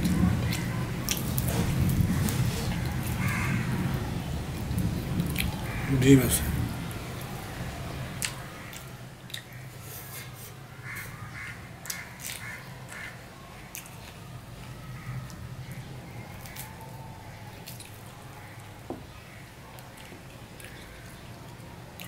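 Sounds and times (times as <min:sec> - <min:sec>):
person chewing with wet smacking: 0:00.0 - 0:03.3, 0:04.8 - 0:05.7, 0:08.2 - 0:10.4, 0:11.8 - 0:18.8, 0:19.6 - 0:22.0.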